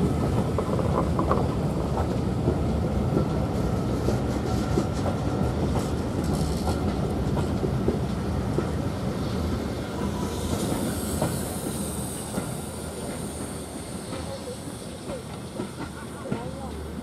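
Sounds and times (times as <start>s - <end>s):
train wheels clattering on rail joints: 0.0s - 17.0s.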